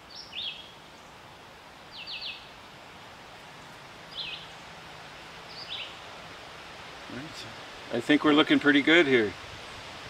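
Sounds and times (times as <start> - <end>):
outdoor background noise: 0.0 - 10.0
small bird chirping: 0.1 - 1.2, 1.9 - 2.5, 4.1 - 4.7, 5.4 - 6.0.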